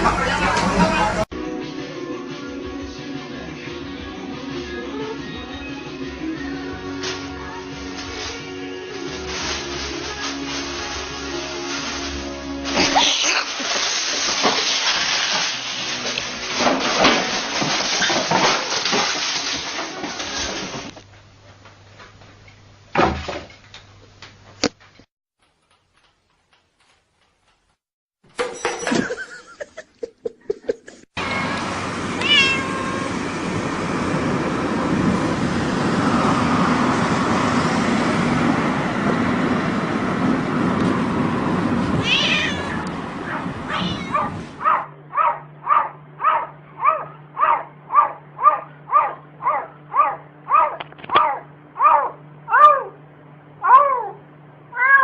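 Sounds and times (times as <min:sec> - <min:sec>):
cats meowing: 0:31.2 - 0:33.2, 0:42.0 - 0:44.4, 0:53.6 - 0:55.0.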